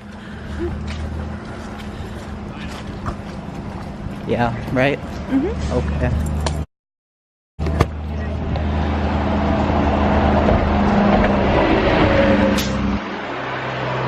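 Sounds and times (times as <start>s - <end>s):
vehicle engine running: 0.0s - 6.6s, 7.6s - 11.6s.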